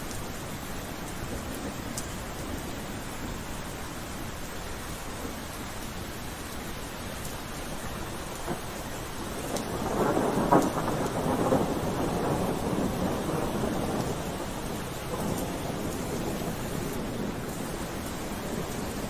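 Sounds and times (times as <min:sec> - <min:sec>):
steady rain: 0:00.0 - 0:19.0
thunder rumbling and cracking: 0:08.1 - 0:19.0.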